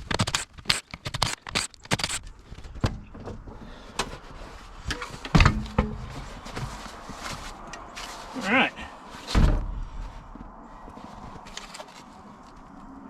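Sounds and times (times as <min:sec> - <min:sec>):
tools clicking and clanking: 0:00.0 - 0:02.3
heavy thump: 0:05.3 - 0:06.6, 0:09.3 - 0:10.3.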